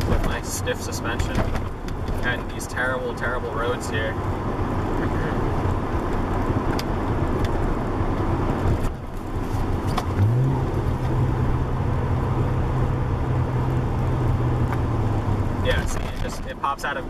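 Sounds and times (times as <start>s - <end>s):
car engine running: 0.0s - 17.0s
road noise: 0.0s - 17.0s.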